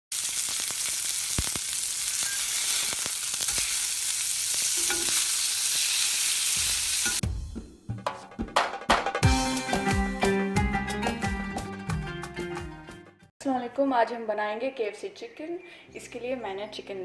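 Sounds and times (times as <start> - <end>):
chicken deep-frying in oil: 0.1 - 7.2.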